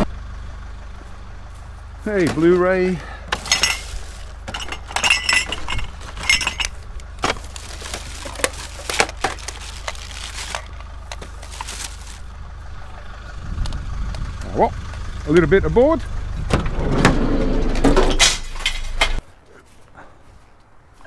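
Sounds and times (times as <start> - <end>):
vehicle engine idling: 0.0 - 19.2
scrap clinking and rattling: 1.6 - 12.3, 16.4 - 19.2.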